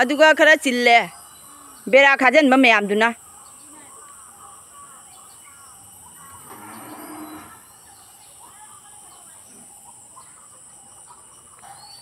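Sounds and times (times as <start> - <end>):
faint bird chirps: 0.0 - 12.0
high-pitched insect drone: 3.1 - 12.0.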